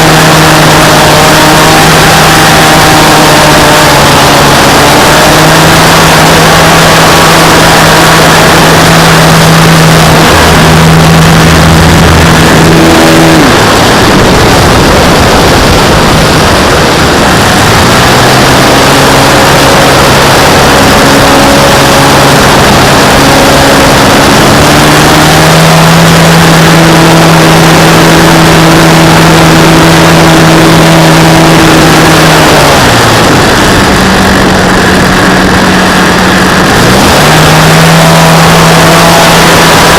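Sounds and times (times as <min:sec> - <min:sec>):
model airplane motor humming: 0:00.0 - 0:39.9
wind rush: 0:00.0 - 0:39.9.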